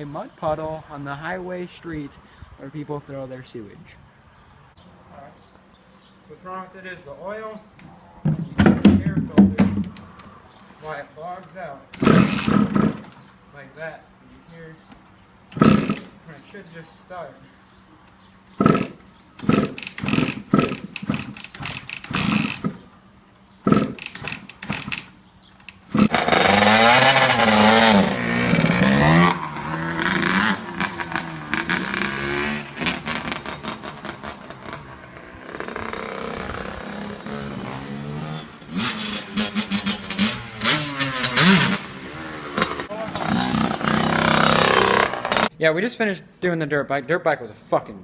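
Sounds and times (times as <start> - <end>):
dirt bike engine sputtering and revving: 12.0 - 13.2, 15.6 - 16.2, 18.5 - 22.9, 23.6 - 25.1, 25.7 - 45.5.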